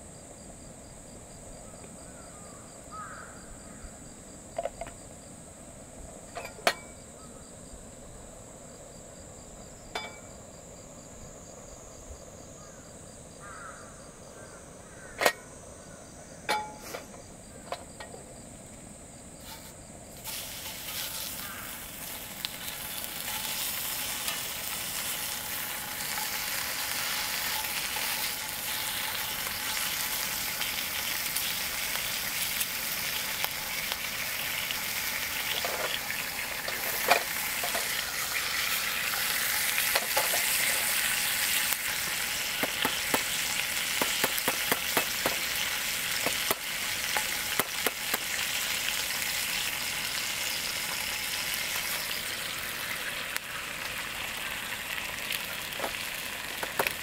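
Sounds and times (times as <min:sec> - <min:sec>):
food sizzling in a pan: 0:19.4 - 0:57.0.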